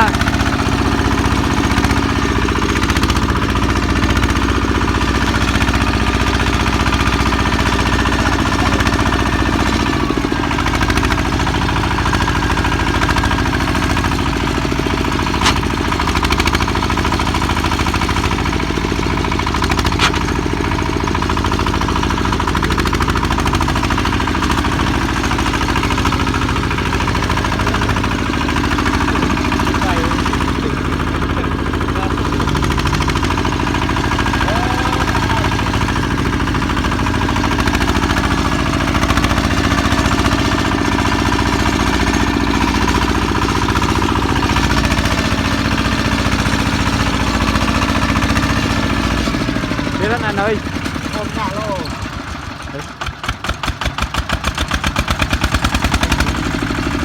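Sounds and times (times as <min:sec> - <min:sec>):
diesel engine chugging: 0:00.0 - 0:57.0
sharp engine knocks: 0:08.8 - 0:40.9.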